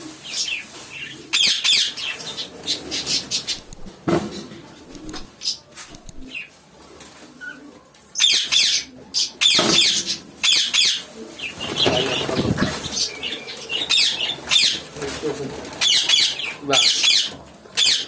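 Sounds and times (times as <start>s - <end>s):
birds chirping: 0.3s - 4.0s, 4.6s - 6.5s, 8.2s - 18.0s
birds screeching: 0.3s - 4.0s, 8.2s - 18.0s.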